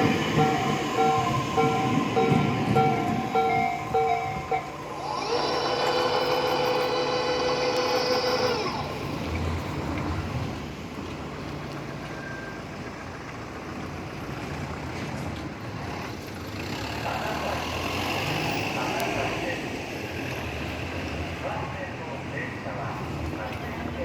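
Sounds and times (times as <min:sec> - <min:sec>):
level crossing alarm ringing: 0:00.0 - 0:08.9
electric train motor whine: 0:00.0 - 0:09.7.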